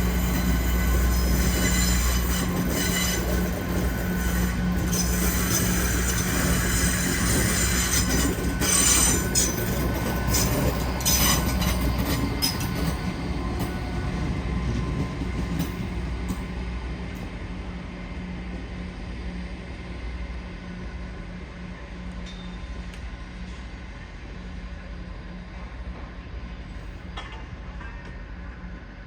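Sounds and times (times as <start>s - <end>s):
train wheels squealing on track: 0.0s - 17.4s, 20.9s - 24.3s.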